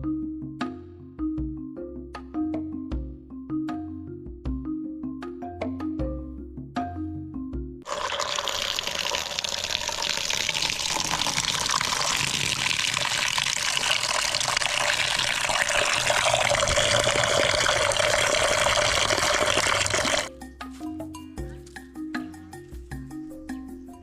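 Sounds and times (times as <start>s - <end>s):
background music: 0.0s - 7.8s, 19.9s - 24.0s
water running into a container: 7.8s - 20.3s.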